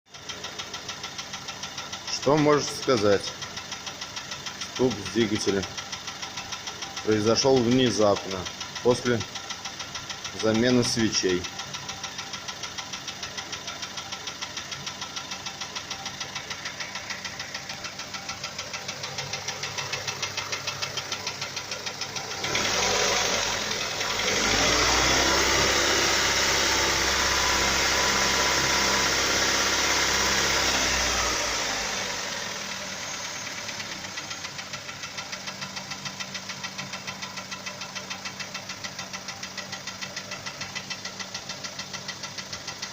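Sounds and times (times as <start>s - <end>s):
car engine idling with knock: 0.1s - 42.9s
car engine revving: 16.4s - 37.1s.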